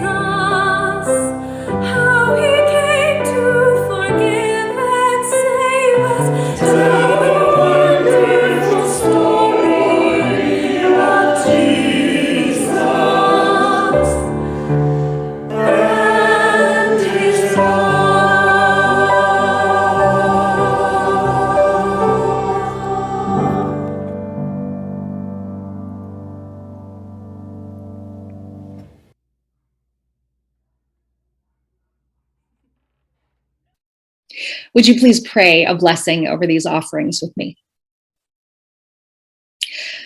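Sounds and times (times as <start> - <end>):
choir singing: 0.0 - 1.3, 2.0 - 24.6
instrumental accompaniment: 6.0 - 29.1.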